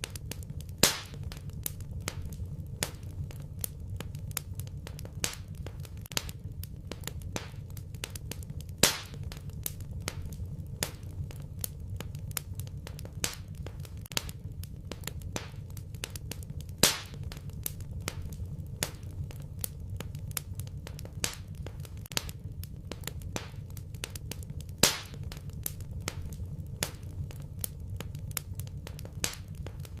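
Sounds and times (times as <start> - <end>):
loud fire pops: 0.0 - 30.0
low rumble: 0.0 - 30.0
wood fire crackling: 0.0 - 30.0.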